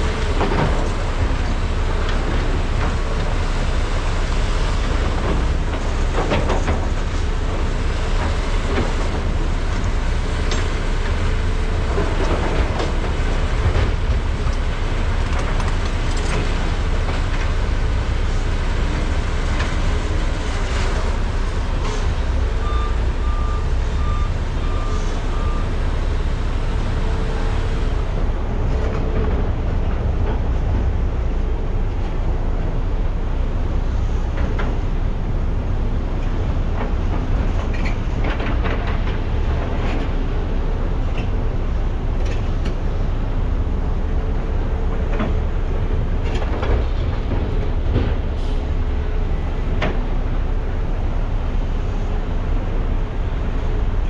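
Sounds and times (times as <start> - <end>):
excavator diesel engines running: 0.0 - 54.0
backup alarm beeping: 22.5 - 25.8.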